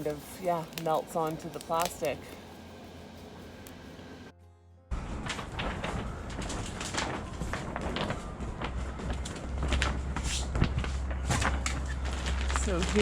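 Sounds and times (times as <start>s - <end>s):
crackling and rustling: 0.0s - 4.3s, 4.9s - 13.0s
wind rumbling on microphone: 4.9s - 13.0s.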